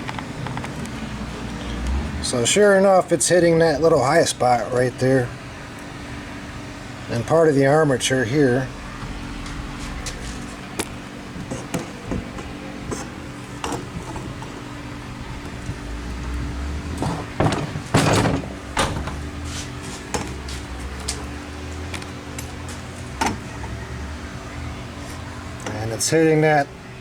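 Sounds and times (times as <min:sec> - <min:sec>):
low hum: 0:08.5 - 0:25.7
metal scraping and rattling: 0:09.4 - 0:23.8.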